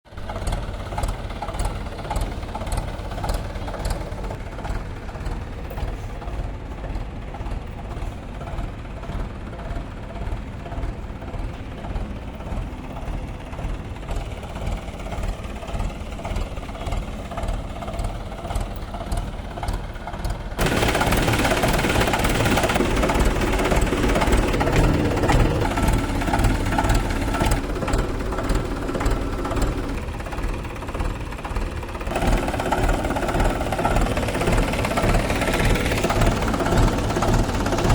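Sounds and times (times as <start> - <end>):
tractor diesel engine idling: 0.1 - 37.9.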